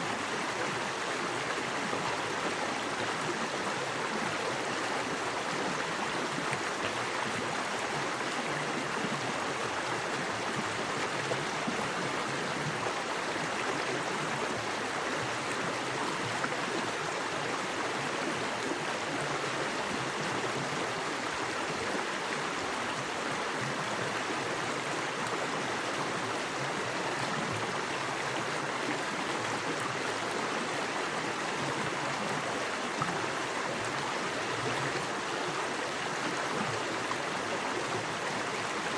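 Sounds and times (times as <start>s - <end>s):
creek water rushing over rocks: 0.0s - 38.9s.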